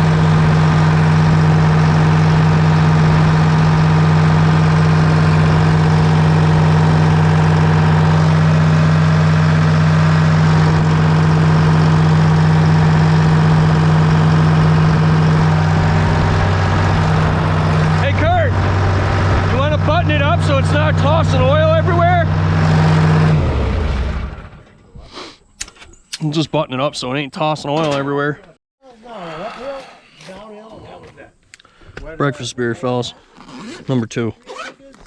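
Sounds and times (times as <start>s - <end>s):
excavator diesel engine running: 0.0s - 24.7s.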